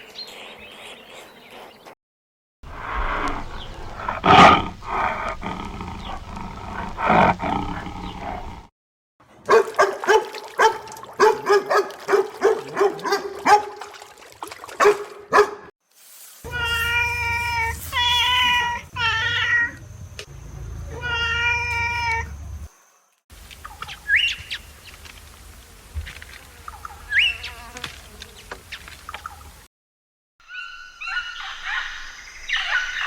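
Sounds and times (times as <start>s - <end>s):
cat meowing: 16.5s - 19.8s, 20.9s - 22.3s.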